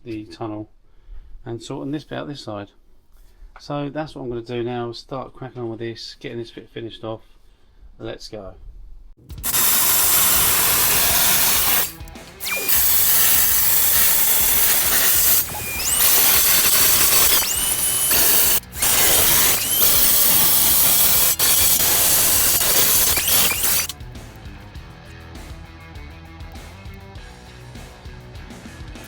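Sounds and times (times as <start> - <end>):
power tool on sheet steel: 9.4 - 23.9
power tool whine: 9.4 - 23.9.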